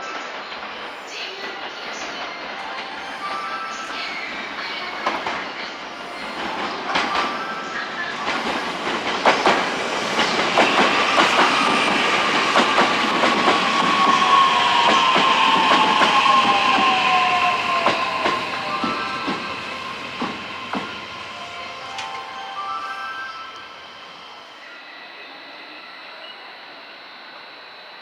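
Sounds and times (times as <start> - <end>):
train wheels clacking over rail joints: 8.2 - 19.5.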